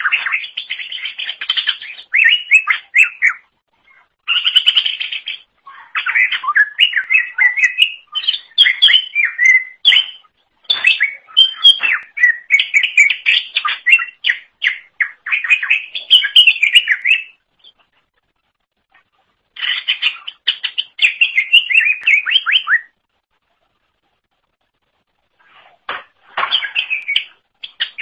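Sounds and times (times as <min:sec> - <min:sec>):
bird singing chirps and whistles: 0:00.0 - 0:03.5, 0:04.2 - 0:17.8, 0:19.6 - 0:23.0, 0:26.4 - 0:28.0.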